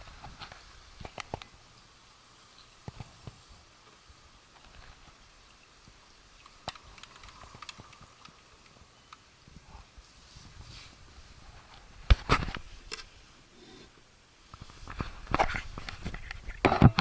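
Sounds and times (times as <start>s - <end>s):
rain hissing: 0.0s - 16.7s
light clicks and taps: 6.4s - 9.3s.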